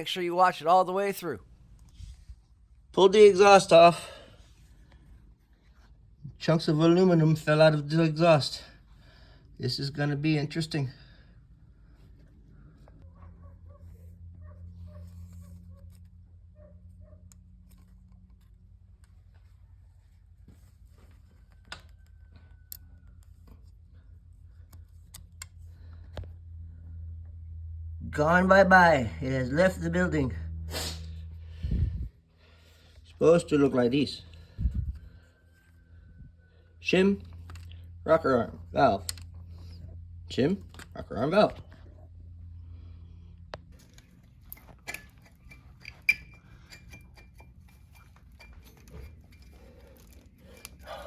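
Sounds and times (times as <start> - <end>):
steady low hum: 8.5 - 51.0
small metal parts clinking: 43.8 - 51.0
metallic clicks of hand tools: 43.9 - 51.0.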